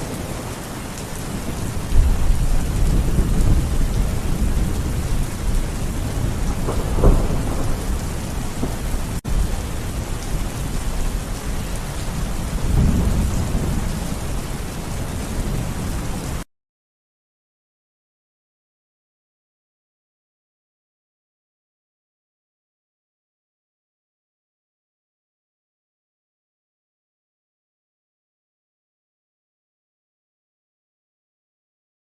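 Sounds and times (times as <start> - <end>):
thunder rumbling: 0.0 - 16.4
heavy rain: 0.0 - 16.5.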